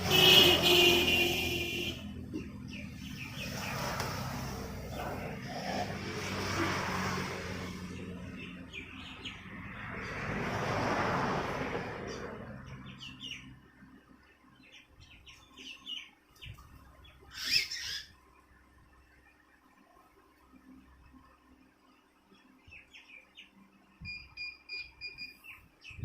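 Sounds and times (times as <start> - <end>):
passing traffic: 0.0 - 14.4
birds chirping: 0.2 - 6.1, 7.5 - 10.2, 12.1 - 18.2.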